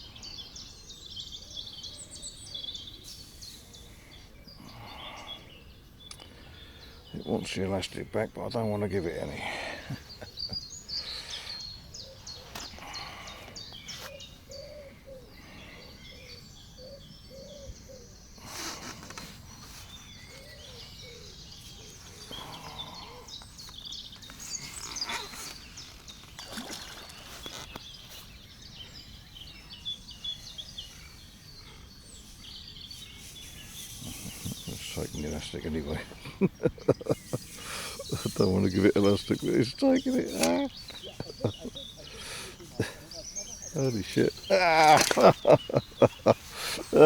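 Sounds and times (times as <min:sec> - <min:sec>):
birds chirping: 0:00.0 - 0:47.0
background hiss: 0:00.2 - 0:47.0
bird cooing: 0:14.0 - 0:18.2, 0:39.5 - 0:47.0.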